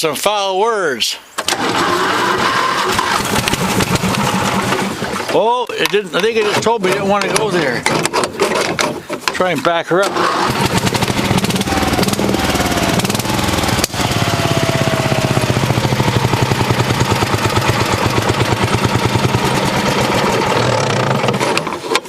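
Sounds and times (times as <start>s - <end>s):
vehicle engine running hard: 2.9s - 5.0s, 10.4s - 21.4s.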